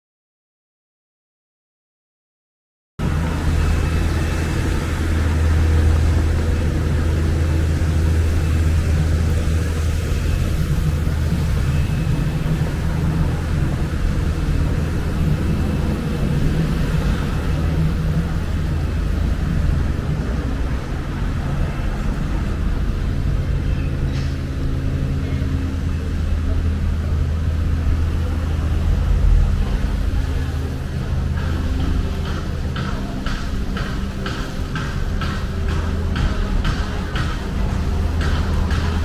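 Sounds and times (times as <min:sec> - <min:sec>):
low even hum: 0:03.0 - 0:39.0.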